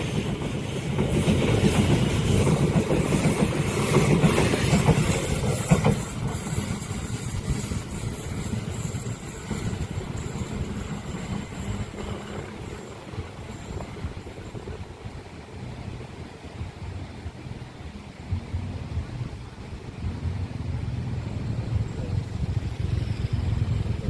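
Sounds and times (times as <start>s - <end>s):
train rolling on rails: 0.0s - 24.0s.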